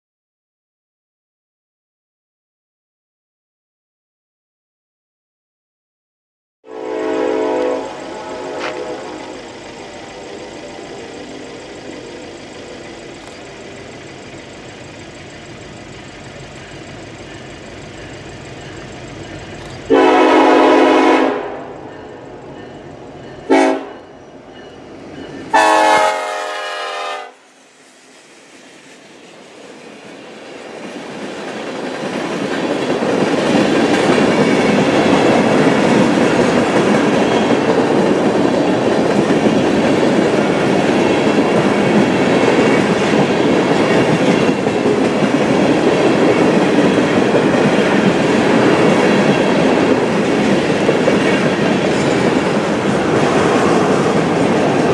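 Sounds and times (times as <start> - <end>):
locomotive air horn blasts: 6.6 - 11.4, 19.9 - 21.9, 23.5 - 24.0, 25.5 - 27.4
train wheels rumbling on rail: 6.7 - 54.9.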